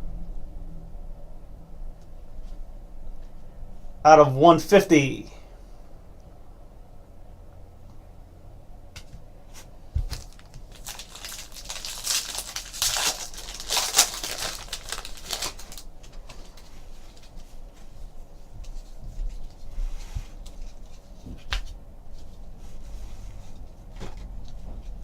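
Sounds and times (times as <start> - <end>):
foil wrapper tearing and crinkling: 10.1 - 16.6.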